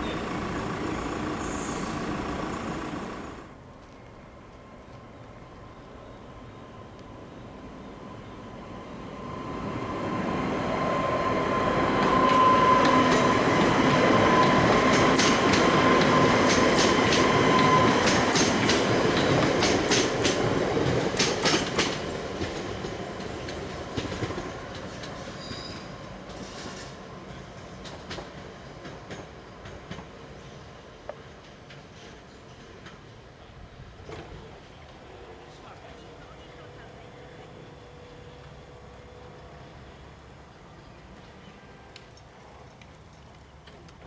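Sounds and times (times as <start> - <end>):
wheels clicking over rail joints: 0.0 - 3.9, 12.8 - 33.1
train passing: 0.0 - 44.0.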